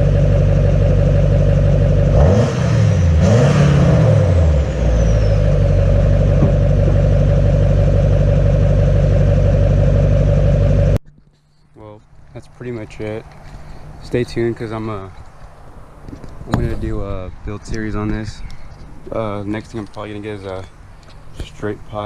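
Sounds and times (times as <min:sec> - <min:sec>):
diesel engine idling and revving: 0:00.0 - 0:11.0.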